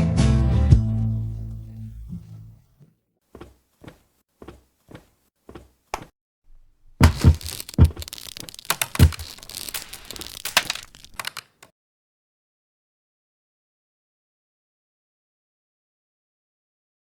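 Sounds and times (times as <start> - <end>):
heavy thumps: 3.4 - 11.6
crunching and cracking: 6.5 - 11.7.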